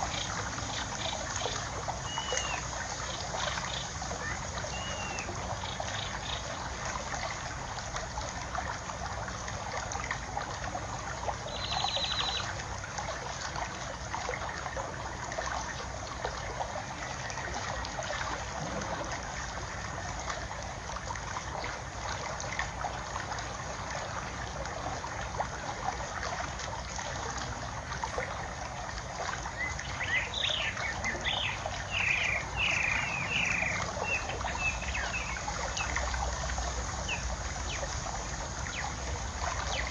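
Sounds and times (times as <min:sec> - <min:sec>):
water trickling: 0:00.0 - 0:39.9
bird chirping: 0:11.5 - 0:12.4.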